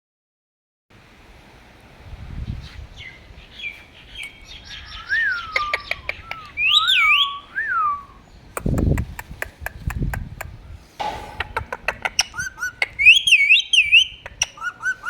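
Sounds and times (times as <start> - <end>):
parrot chirping and whistling: 5.0 - 8.2, 12.0 - 15.0.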